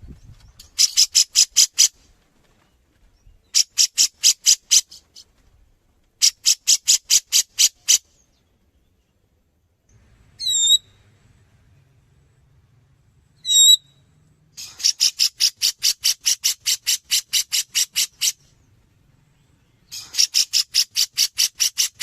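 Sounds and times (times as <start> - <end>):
short wavering bird call: 10.4 - 11.0, 13.4 - 17.2.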